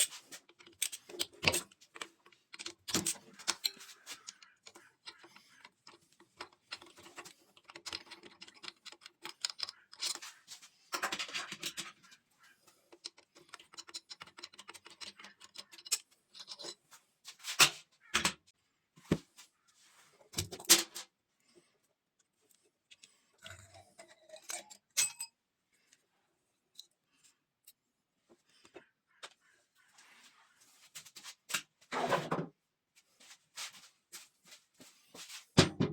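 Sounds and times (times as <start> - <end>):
metal parts and tools clinking: 0.0 - 12.2, 13.0 - 16.8, 23.6 - 25.4.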